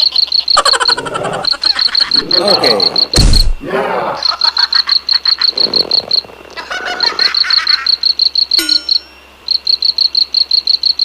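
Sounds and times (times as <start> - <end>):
cricket chirping: 0.0 - 11.0
frogs croaking: 0.0 - 11.0
brief tone: 8.4 - 11.0.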